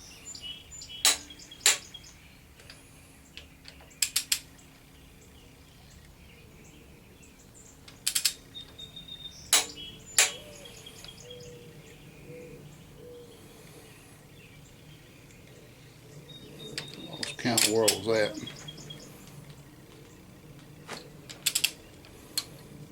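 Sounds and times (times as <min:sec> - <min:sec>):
ratchet clicks: 0:01.0 - 0:01.9, 0:03.4 - 0:04.6, 0:07.8 - 0:08.8, 0:09.5 - 0:10.4, 0:21.3 - 0:22.9
torque wrench clicks: 0:01.0 - 0:01.9, 0:03.4 - 0:04.5, 0:07.9 - 0:08.4, 0:21.4 - 0:21.8.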